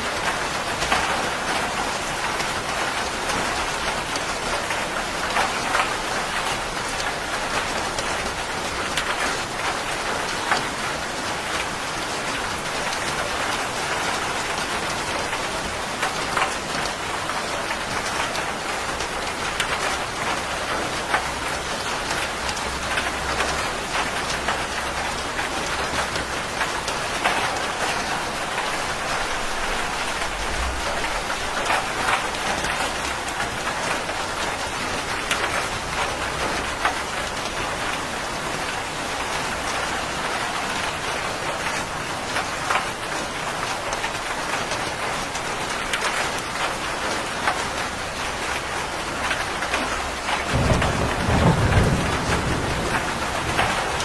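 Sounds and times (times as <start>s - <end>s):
heavy rain falling: 0.0s - 54.0s
distant thunder rumble: 50.5s - 54.0s.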